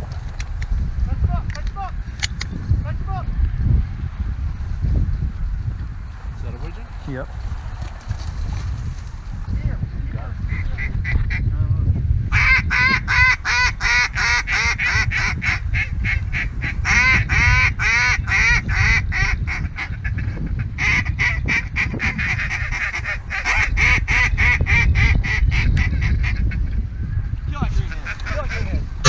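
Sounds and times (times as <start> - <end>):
wind rumble on microphone: 0.0 - 29.0
geese honking: 12.4 - 15.6.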